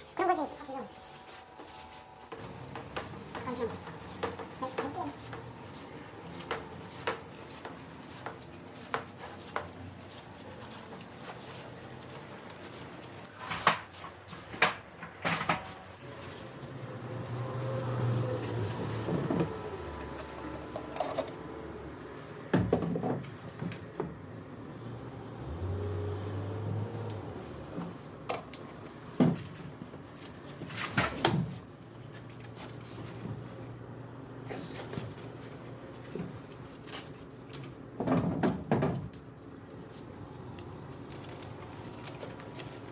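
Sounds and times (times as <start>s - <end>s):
knocks and clatter of hand work: 2.3s - 16.0s, 22.5s - 24.2s, 34.9s - 39.3s.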